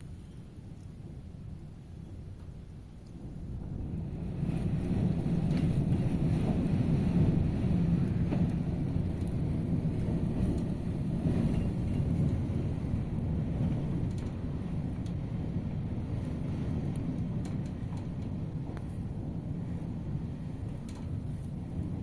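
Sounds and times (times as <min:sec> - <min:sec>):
strong wind buffeting microphone: 0:00.0 - 0:22.0.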